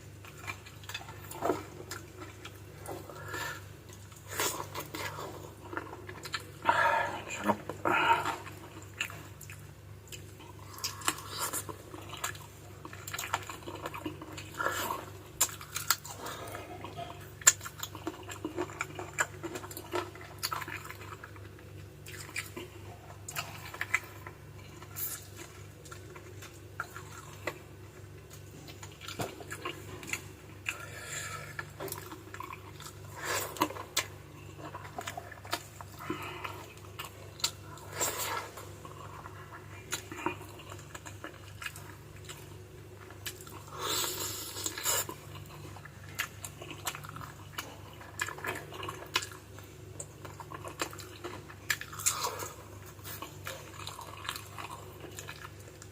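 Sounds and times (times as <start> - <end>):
steady low hum: 0.0 - 55.9
chewing and sucking: 28.3 - 55.9.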